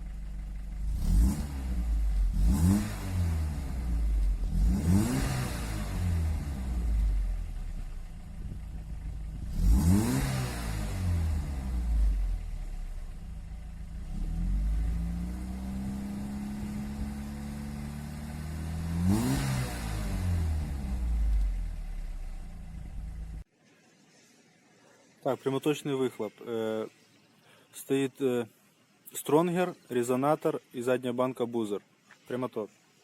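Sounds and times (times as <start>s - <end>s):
car engine idling and revving: 0.0s - 23.5s.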